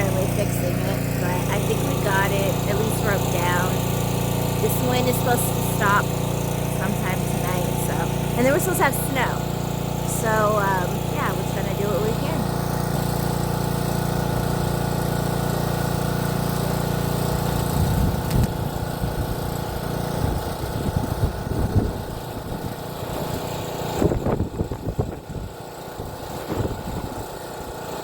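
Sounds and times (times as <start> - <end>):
wind buffeting microphone: 17.7 - 19.3, 20.2 - 23.4, 24.0 - 27.2.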